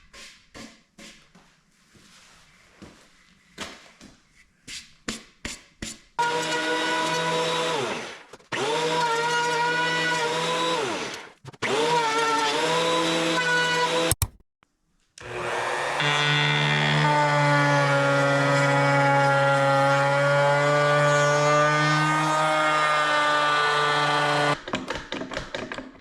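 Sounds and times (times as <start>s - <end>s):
power tool motor whining: 21.0s - 24.6s.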